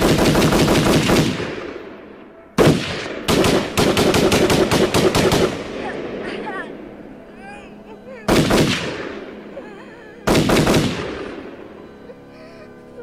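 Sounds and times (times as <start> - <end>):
rapid gunfire volleys: 0.0 - 2.0, 2.6 - 6.2, 8.3 - 9.4, 10.3 - 11.5.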